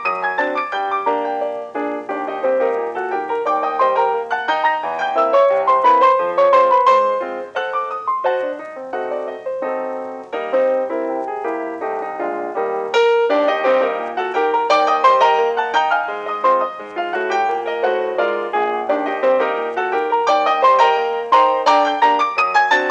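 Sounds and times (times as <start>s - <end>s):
solo piano music: 0.0s - 22.9s.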